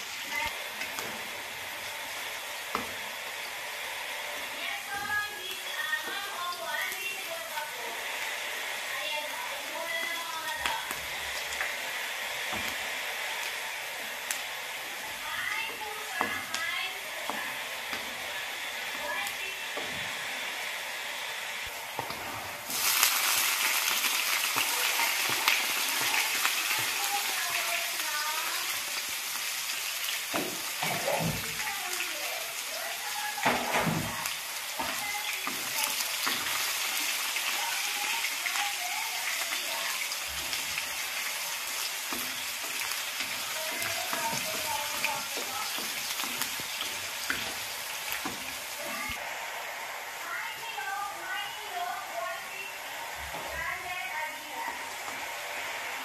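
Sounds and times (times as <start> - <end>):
garlic sizzling in hot oil: 0.0 - 56.0
wooden spatula scraping a pan: 14.8 - 20.3, 33.4 - 37.1, 39.8 - 49.2.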